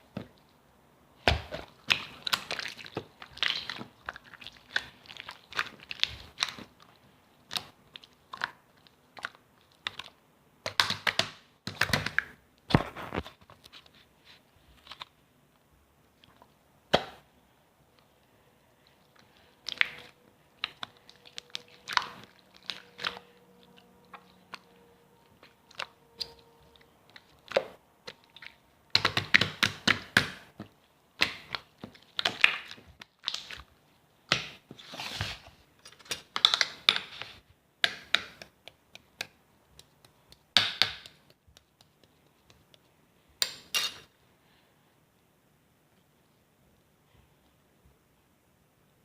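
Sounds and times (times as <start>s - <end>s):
clicks and taps: 37.8s - 43.7s.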